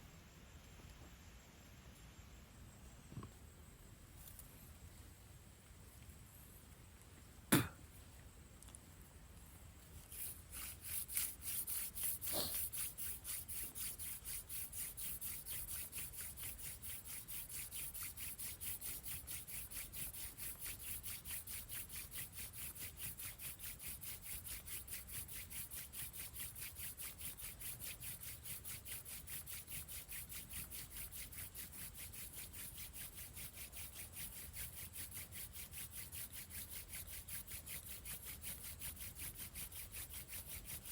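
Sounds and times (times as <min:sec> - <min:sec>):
wooden spindle scratching fireboard: 0:10.0 - 0:40.9.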